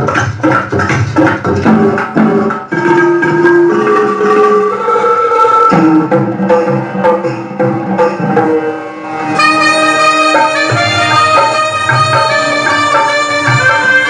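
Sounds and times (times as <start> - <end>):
bright accompaniment: 0.0 - 14.0
tabla-style percussion: 0.0 - 14.0
saxophone melody: 8.0 - 14.0.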